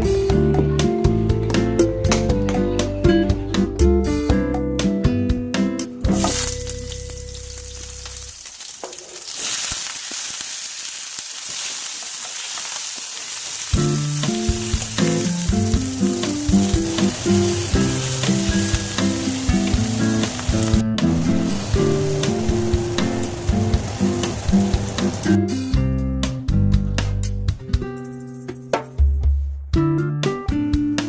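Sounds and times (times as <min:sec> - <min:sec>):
background music: 0:00.0 - 0:08.1, 0:13.8 - 0:31.0
food sizzling in hot oil: 0:06.1 - 0:25.4.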